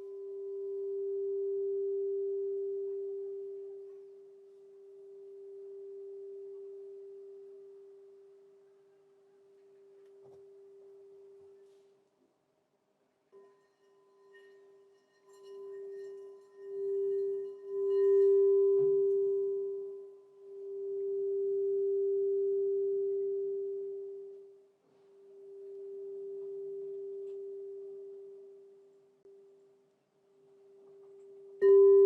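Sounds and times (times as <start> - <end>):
singing bowl ringing: 0.0 - 8.6, 13.4 - 24.6, 25.2 - 29.4, 30.8 - 32.0.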